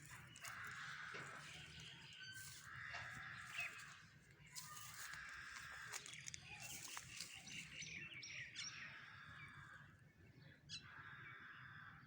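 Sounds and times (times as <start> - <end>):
birds chirping and whistling: 0.1 - 2.7.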